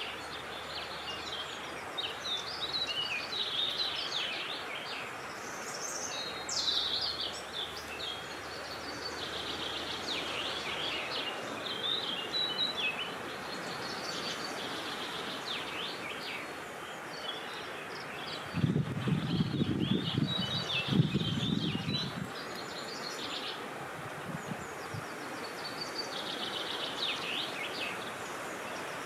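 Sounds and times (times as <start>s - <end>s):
birds chirping and singing: 17.1s - 23.6s
wind rushing: 18.5s - 22.3s.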